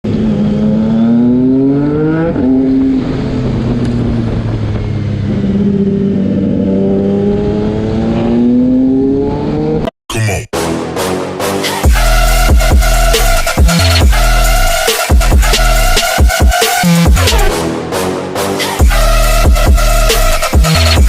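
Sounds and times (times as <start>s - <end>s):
motorcycle engine accelerating: 0.0s - 9.9s.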